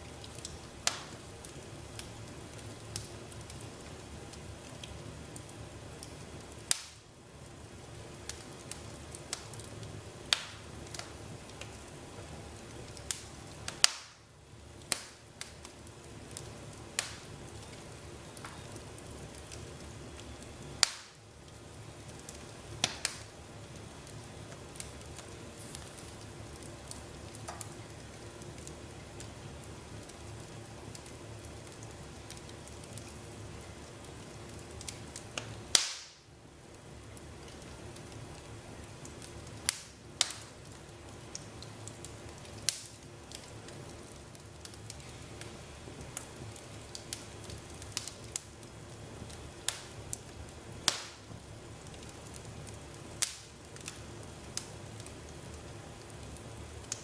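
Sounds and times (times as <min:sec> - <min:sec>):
wood fire crackling: 0:00.0 - 0:57.0
sharp fire pops: 0:00.2 - 0:03.8, 0:04.8 - 0:07.1, 0:08.3 - 0:11.9, 0:12.9 - 0:21.2, 0:22.2 - 0:23.4, 0:34.5 - 0:36.3, 0:39.1 - 0:48.6, 0:49.2 - 0:55.3.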